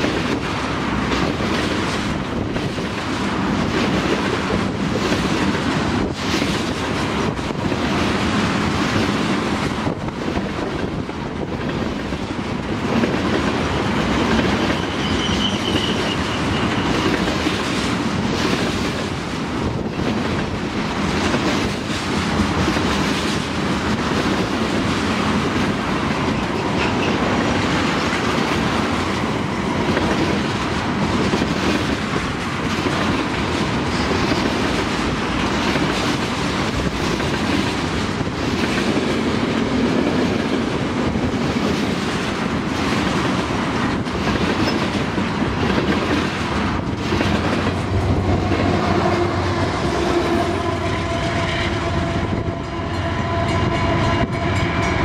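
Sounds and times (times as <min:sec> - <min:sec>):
freight train wheels clattering: 0:00.0 - 0:55.0
locomotive engine drone: 0:46.4 - 0:55.0.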